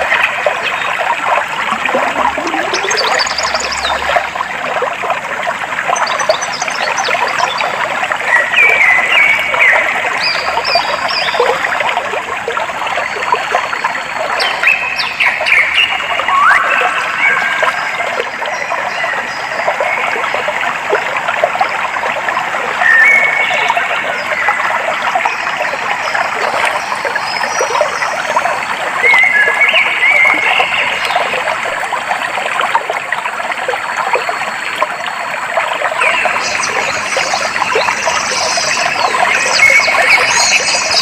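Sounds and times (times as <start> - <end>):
stream babbling over stones: 0.0 - 41.0
whistled bird calls: 2.0 - 4.1, 14.4 - 17.6, 22.8 - 23.9, 29.0 - 31.2.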